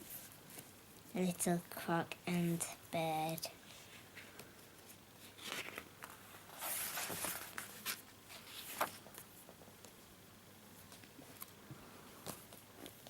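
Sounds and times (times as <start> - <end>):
book pages rustling: 3.3 - 9.3, 12.2 - 13.0.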